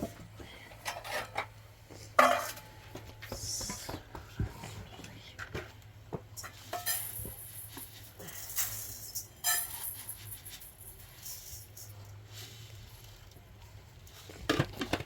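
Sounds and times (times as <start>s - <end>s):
objects knocking and clattering: 0.0s - 4.7s, 5.4s - 12.0s, 14.3s - 15.0s.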